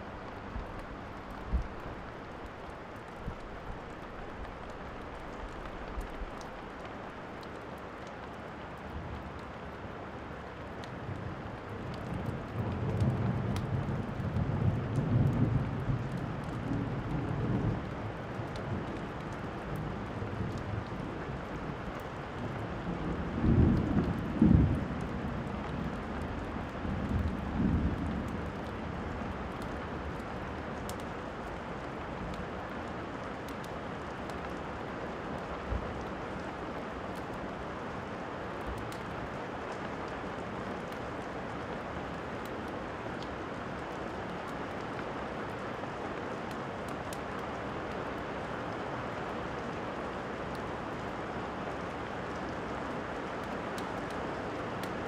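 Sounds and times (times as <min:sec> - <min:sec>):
steady rainfall: 0:00.0 - 0:55.0
wood fire crackling: 0:00.1 - 0:09.8.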